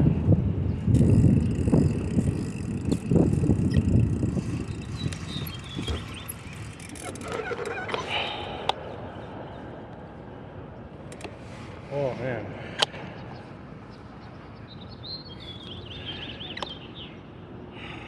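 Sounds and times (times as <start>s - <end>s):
wind noise on microphone: 0.0s - 7.9s
bicycle tyre noise: 0.0s - 8.4s
faint squeaks and clicks: 1.0s - 8.1s.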